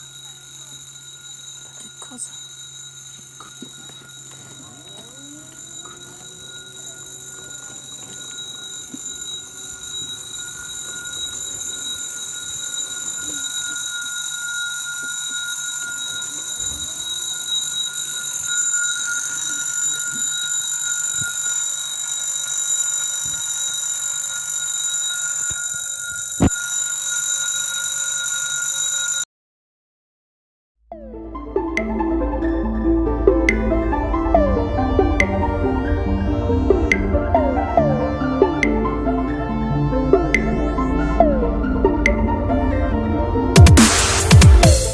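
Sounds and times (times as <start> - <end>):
level crossing bell ringing: 0.0 - 29.3.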